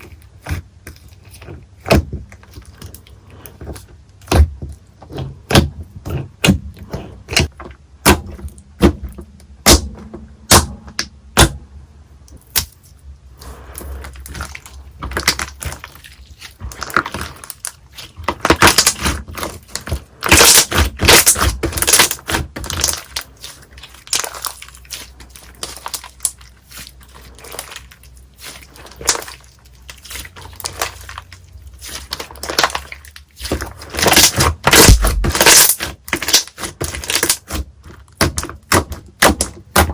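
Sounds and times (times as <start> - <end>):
slime crackling and squishing: 0.0 - 10.7, 12.2 - 39.9.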